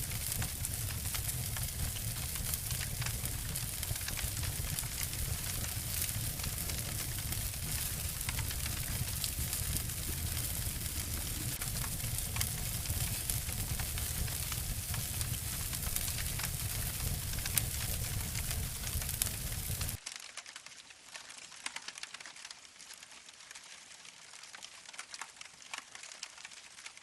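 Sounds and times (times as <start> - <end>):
low fire rumble: 0.0 - 20.0
wood fire crackling: 0.0 - 27.0.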